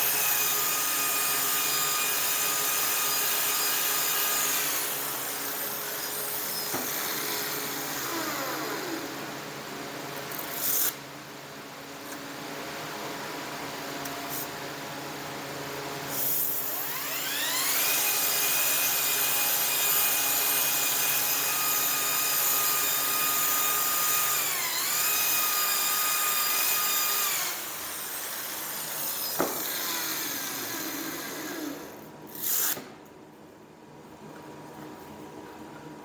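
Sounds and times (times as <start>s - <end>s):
power tool whining: 16.1s - 32.9s.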